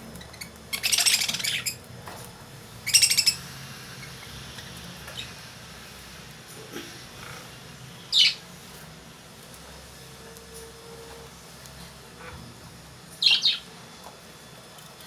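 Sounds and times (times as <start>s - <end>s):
lovebirds chirping: 0.2s - 1.8s, 2.8s - 4.4s.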